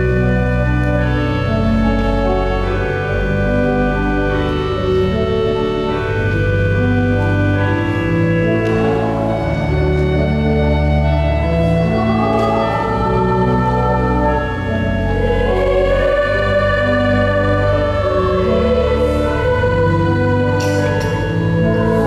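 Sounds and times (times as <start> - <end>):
pipe organ playing chords: 0.0 - 22.0
choir singing: 8.6 - 22.0.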